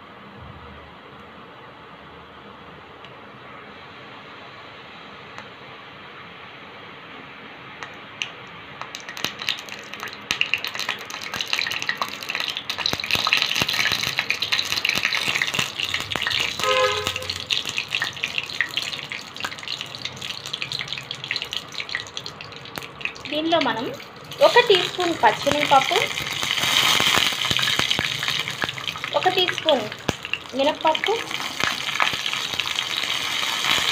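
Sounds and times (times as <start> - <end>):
seeds sizzling and popping in oil: 7.8 - 33.9.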